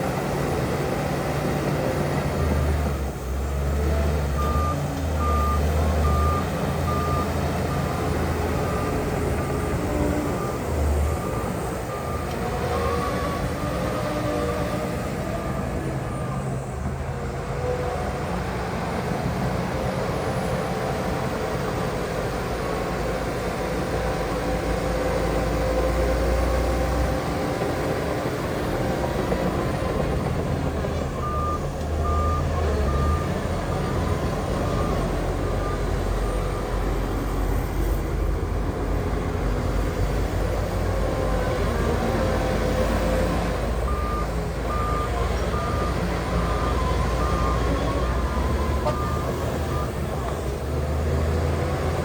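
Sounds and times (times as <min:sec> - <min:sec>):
heavy machinery diesel engines: 0:00.0 - 0:52.0
reversing alarm beeping: 0:04.3 - 0:13.6, 0:31.2 - 0:37.5, 0:43.8 - 0:50.2.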